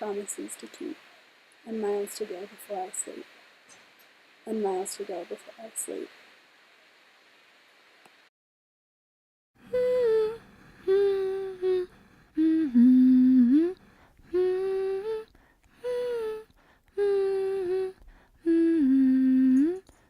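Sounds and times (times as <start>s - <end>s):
person humming: 9.6s - 20.0s.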